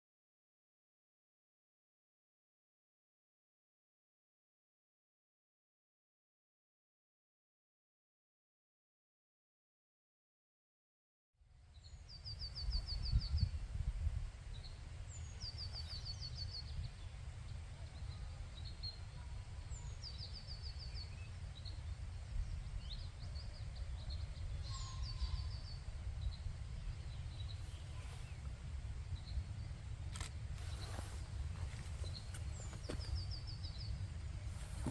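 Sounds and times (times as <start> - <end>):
songbird singing: 11.6 - 34.9
bird chirps: 11.8 - 13.6, 14.5 - 28.5, 30.2 - 34.9
steady low rumble: 11.9 - 34.9.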